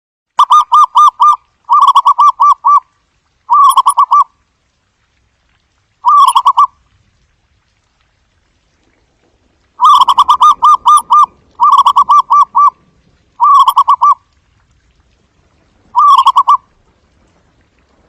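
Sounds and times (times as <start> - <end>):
dove staccato cooing: 9.8 - 12.8, 13.4 - 14.2, 15.9 - 16.6.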